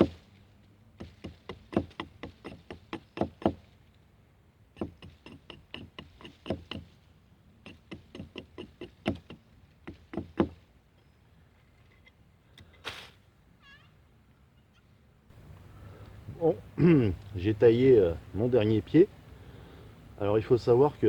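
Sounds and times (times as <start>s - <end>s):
blade chopping wood: 0.0s - 0.2s, 1.0s - 3.6s, 4.8s - 6.9s, 7.7s - 10.6s.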